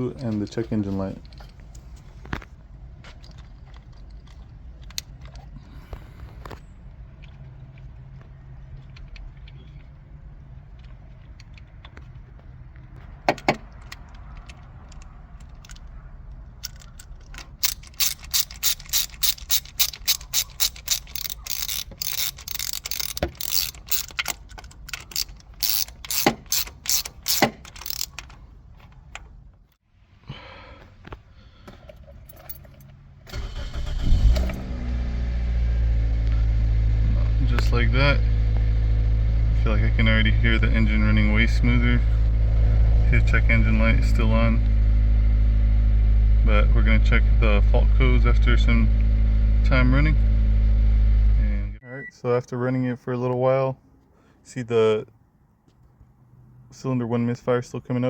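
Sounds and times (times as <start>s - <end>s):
ratchet wrench clicking: 16.6s - 28.4s
car engine starting and idling: 31.9s - 51.8s.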